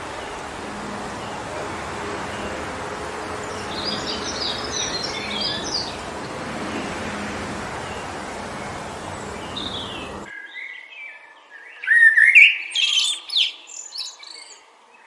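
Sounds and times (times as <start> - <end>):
wind through forest trees: 0.0 - 11.9.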